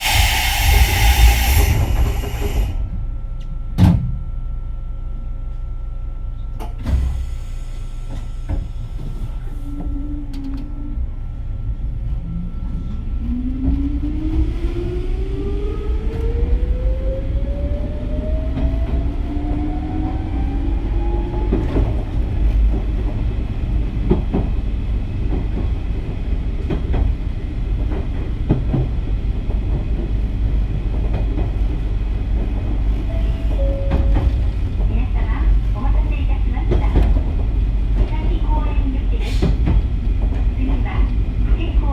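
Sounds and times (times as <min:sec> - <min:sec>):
rail joint clicks: 0:00.0 - 0:02.8, 0:06.5 - 0:07.3, 0:21.3 - 0:41.9
electric train motor whine: 0:00.0 - 0:03.5
train rumble: 0:00.0 - 0:05.6, 0:06.3 - 0:41.9.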